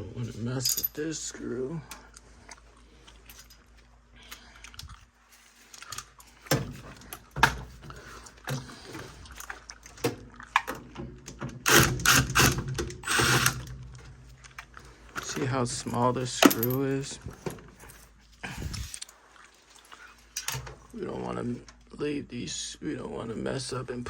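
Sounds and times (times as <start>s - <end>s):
metal parts clattering: 0.2s - 1.3s, 15.2s - 18.1s.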